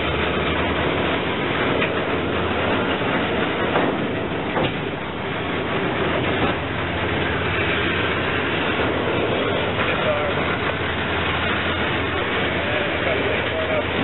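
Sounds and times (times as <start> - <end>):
steel wheels rumbling on rail: 0.0 - 14.0
short clanks: 1.6 - 5.2.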